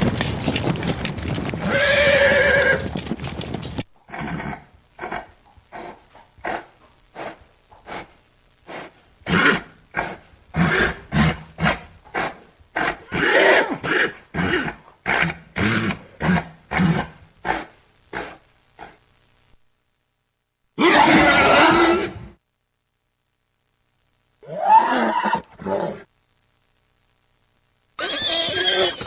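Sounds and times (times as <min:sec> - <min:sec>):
horse grunting breaths: 0:00.0 - 0:08.1.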